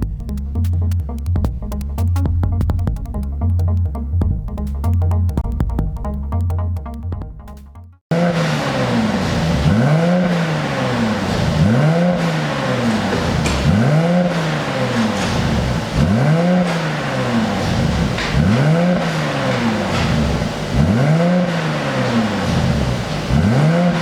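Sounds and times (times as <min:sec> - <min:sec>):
exhaust cracks: 0:00.0 - 0:24.0
car engine revving: 0:08.1 - 0:24.0.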